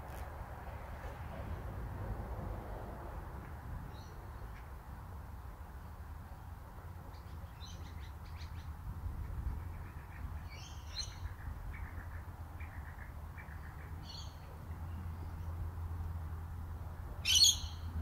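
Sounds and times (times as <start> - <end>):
birds chirping: 17.2 - 18.0.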